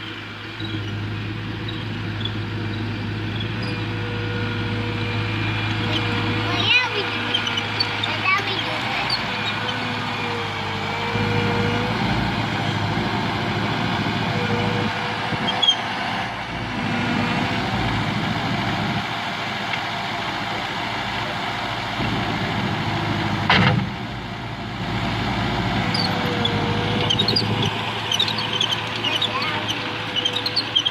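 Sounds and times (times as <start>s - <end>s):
loader engine running: 0.0s - 30.9s.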